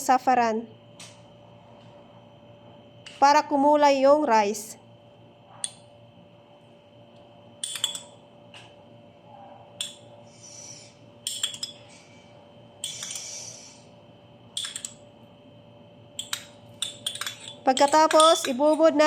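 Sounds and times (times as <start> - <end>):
utensils clinking against cookware: 16.2 - 19.0.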